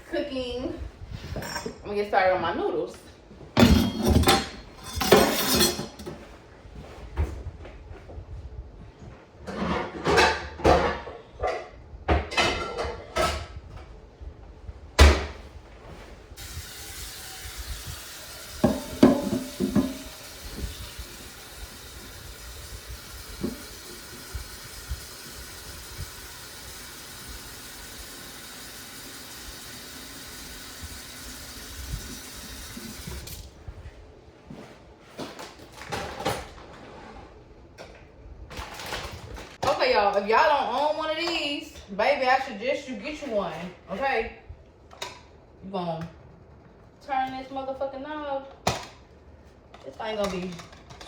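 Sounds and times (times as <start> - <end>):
pot clanking: 3.6 - 6.1, 18.4 - 21.0
pots and dishes clinking: 3.6 - 6.2, 18.5 - 20.8
tap running into pot: 18.5 - 21.1, 23.2 - 25.4.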